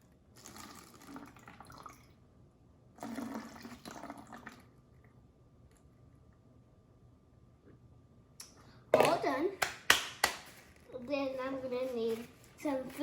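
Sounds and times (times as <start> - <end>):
liquid pouring into a bottle: 0.3 - 2.2, 3.0 - 4.9.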